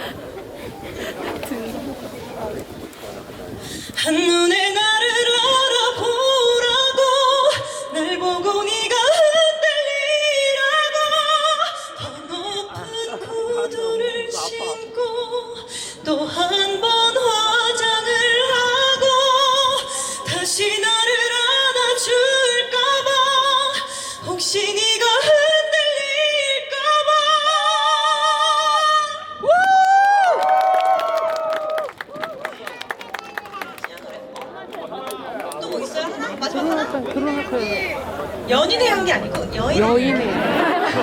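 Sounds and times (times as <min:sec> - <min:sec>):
woman singing a cappella: 0:04.0 - 0:29.4.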